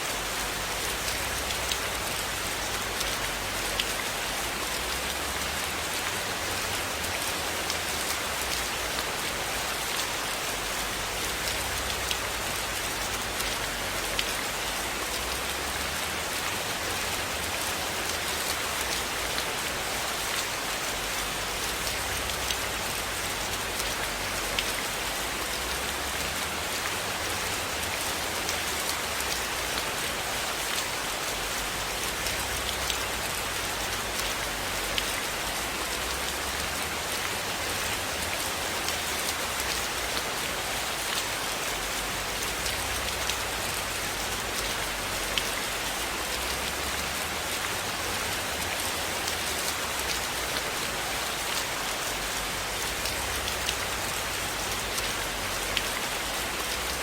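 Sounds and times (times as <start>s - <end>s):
steady rainfall hiss: 0.0s - 57.0s
raindrops ticking: 52.7s - 57.0s.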